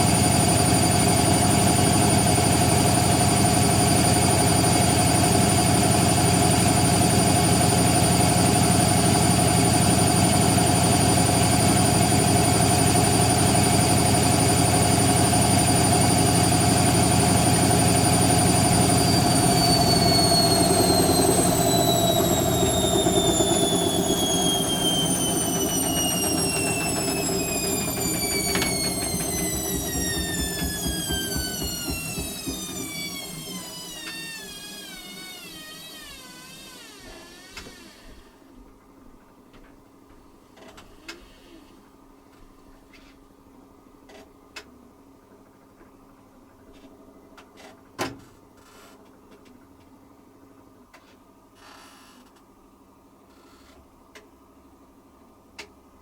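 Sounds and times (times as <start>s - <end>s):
washing machine spinning: 0.0s - 36.7s.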